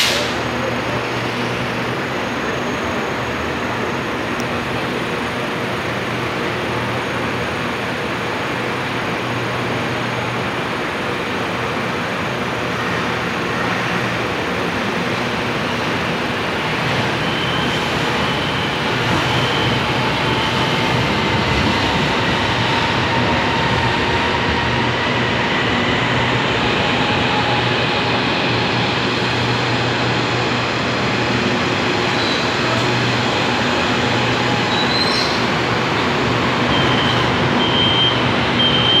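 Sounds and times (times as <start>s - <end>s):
brake squeal: 17.0s - 20.5s, 34.6s - 35.5s.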